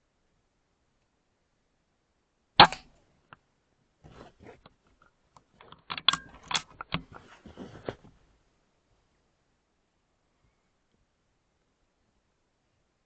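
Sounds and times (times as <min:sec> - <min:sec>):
air rifle firing: 0:02.6 - 0:02.9
small clicks and knocks: 0:04.6 - 0:08.2.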